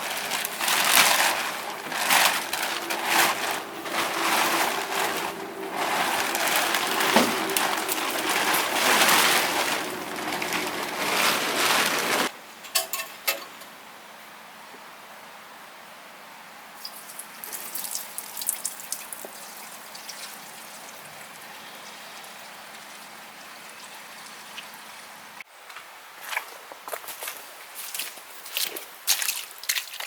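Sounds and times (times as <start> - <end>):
plastic cover crinkling: 0.0 - 12.3.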